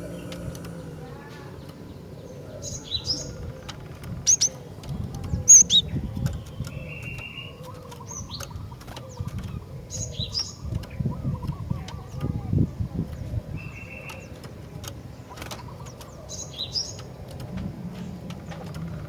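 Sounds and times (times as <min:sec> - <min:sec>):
bird high chirps: 0:00.0 - 0:14.4
bird stuttering rattle: 0:02.6 - 0:19.0.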